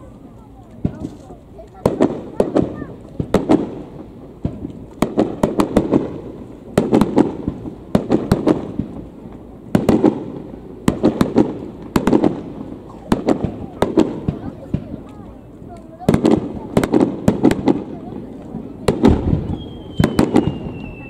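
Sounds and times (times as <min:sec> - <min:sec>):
firework shells bursting: 0:18.9 - 0:21.0.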